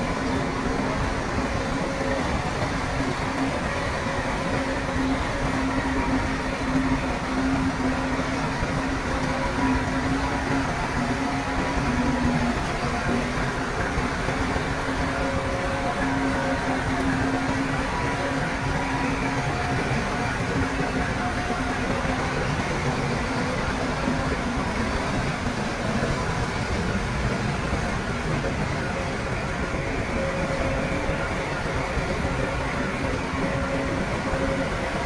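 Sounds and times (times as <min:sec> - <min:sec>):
bulldozer diesel engine running: 0:00.0 - 0:35.0.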